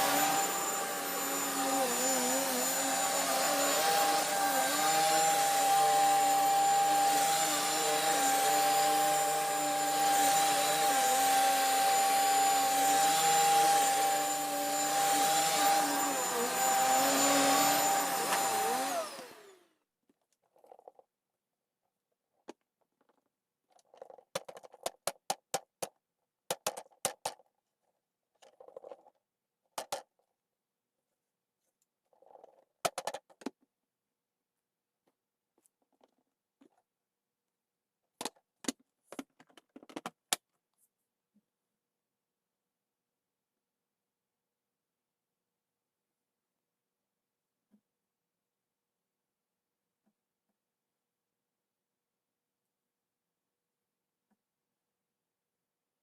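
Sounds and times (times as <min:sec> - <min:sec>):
vacuum cleaner motor whine: 0:00.0 - 0:19.8
clicks and taps: 0:24.0 - 0:27.4.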